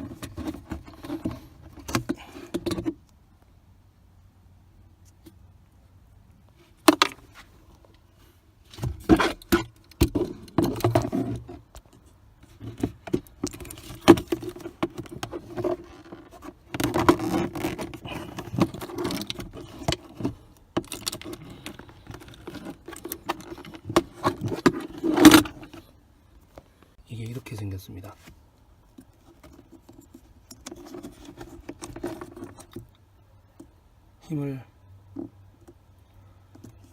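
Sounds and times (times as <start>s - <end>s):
plastic trim clattering and scraping: 8.7s - 25.9s, 29.0s - 32.9s.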